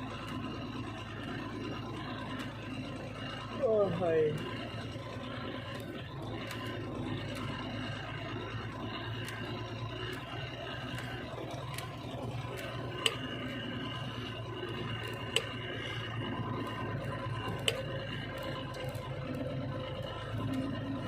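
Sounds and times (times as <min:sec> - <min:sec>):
vehicle engine idling: 0:00.0 - 0:21.0
sharp clicks: 0:15.0 - 0:15.6.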